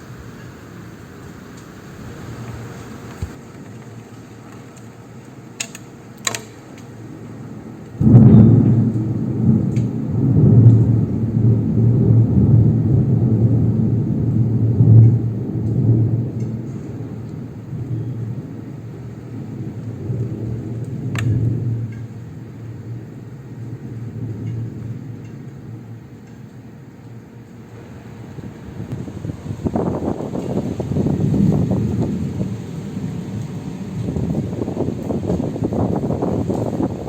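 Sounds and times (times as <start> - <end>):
thunder rumbling: 0.0 - 3.6, 6.9 - 37.0
rain hissing: 0.0 - 37.0.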